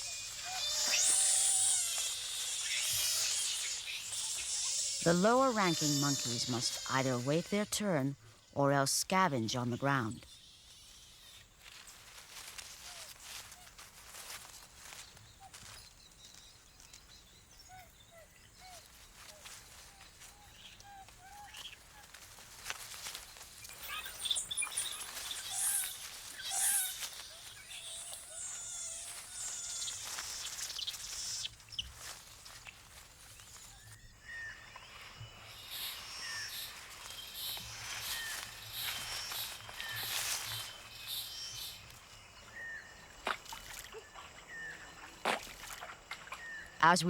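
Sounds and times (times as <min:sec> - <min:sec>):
chirping animal calls: 0:00.0 - 0:08.0, 0:17.7 - 0:32.6, 0:35.3 - 0:42.0
high squeals: 0:00.0 - 0:08.1, 0:34.4 - 0:41.9
sharp cracks and rustles: 0:10.7 - 0:17.2, 0:18.8 - 0:34.0, 0:35.5 - 0:42.0.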